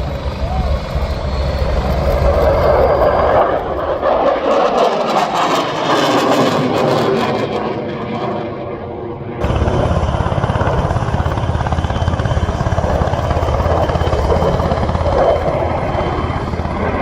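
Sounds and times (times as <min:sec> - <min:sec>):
aircraft flying past: 0:00.0 - 0:17.0
low pulsing throb: 0:09.4 - 0:17.0.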